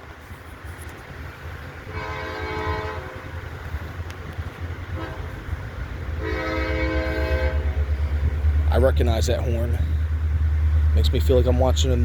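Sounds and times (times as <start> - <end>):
diesel engine rumble: 0.0 - 12.0
locomotive air horn: 1.8 - 3.6, 4.8 - 8.2.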